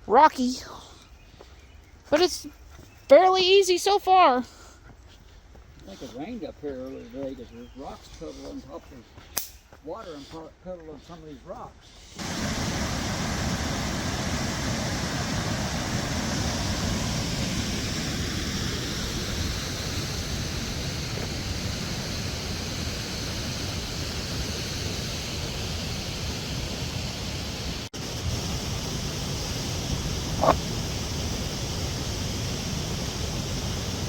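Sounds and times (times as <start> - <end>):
waterfall rushing: 12.2 - 22.2.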